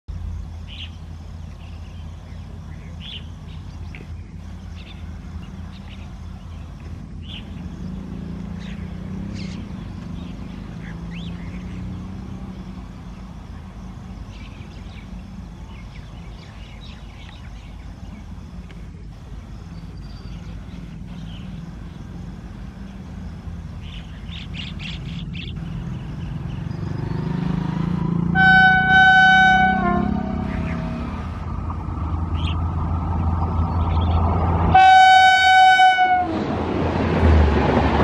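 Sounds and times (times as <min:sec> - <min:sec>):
distant train rumble: 0:00.1 - 0:38.0
birds chirping: 0:00.2 - 0:35.3.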